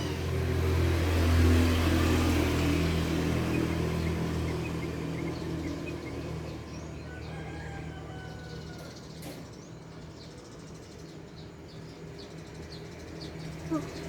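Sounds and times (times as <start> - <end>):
faint bird chirps: 13.4 - 14.0.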